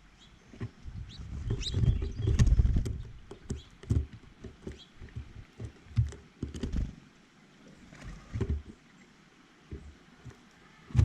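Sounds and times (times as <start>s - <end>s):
birds tapping on a feeder: 0.5s - 7.0s
faint bird chirps: 1.0s - 2.5s.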